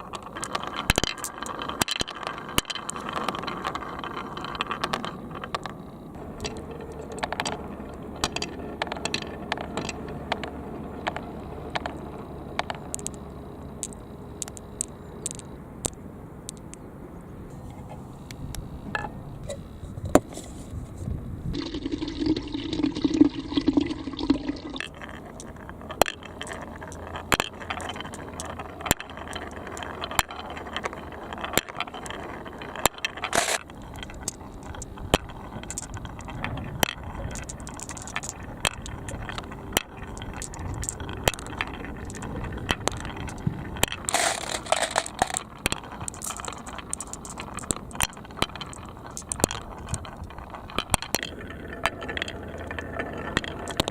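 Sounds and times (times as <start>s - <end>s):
balls clattering down track: 0.0s - 53.9s
water trickling and splashing: 21.5s - 24.9s.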